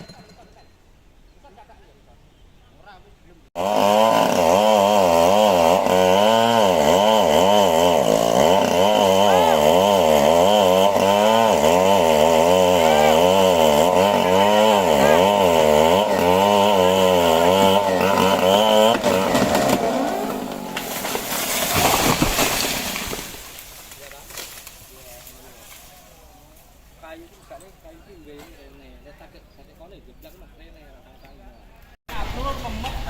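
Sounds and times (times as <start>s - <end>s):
chainsaw cutting wood: 3.6s - 25.9s.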